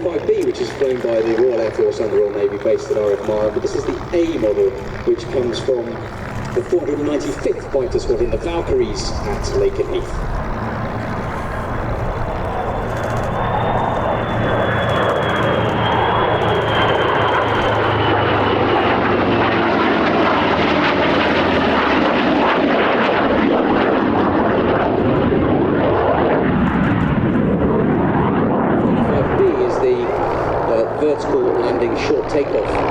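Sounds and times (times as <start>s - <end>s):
thin high jet whine: 0.0s - 21.8s, 28.6s - 32.9s
low engine drone: 0.0s - 22.4s, 23.2s - 32.9s
aircraft engine roar: 0.0s - 32.9s.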